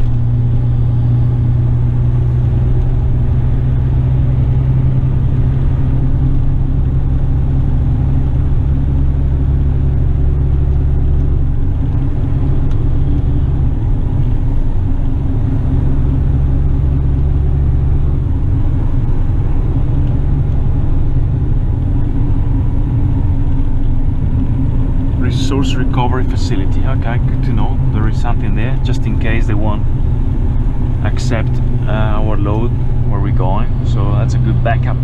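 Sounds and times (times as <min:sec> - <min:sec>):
diesel truck engine droning: 0:00.0 - 0:35.0
road and drivetrain rumble: 0:00.0 - 0:35.0.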